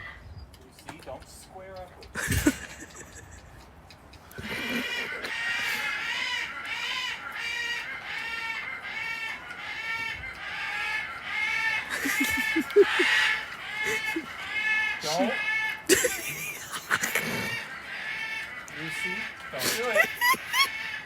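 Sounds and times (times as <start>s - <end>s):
parrot squawking: 10.6s - 21.0s.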